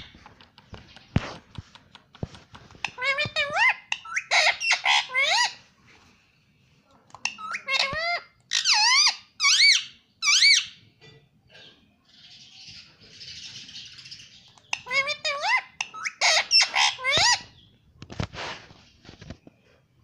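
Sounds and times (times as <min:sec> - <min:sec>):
parrot squeaky calls: 0:02.8 - 0:05.6, 0:07.2 - 0:10.8, 0:13.4 - 0:17.6
soft hissing noise: 0:18.1 - 0:19.1.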